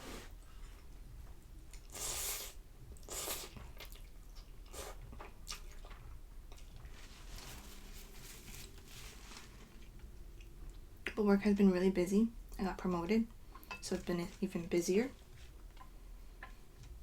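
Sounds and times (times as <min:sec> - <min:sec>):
person chewing noodles: 0:01.7 - 0:07.0.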